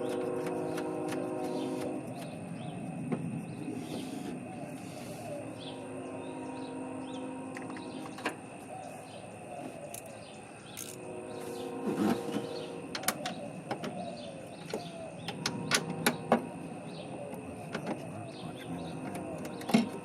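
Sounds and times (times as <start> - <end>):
screwdriver and metal parts clicking: 10.8 - 11.0.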